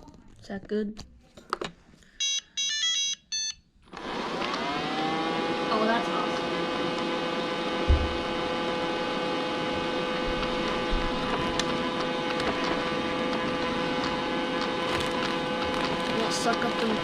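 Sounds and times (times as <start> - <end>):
robot vacuum cleaner running: 3.9 - 17.0
low thump: 7.8 - 8.2.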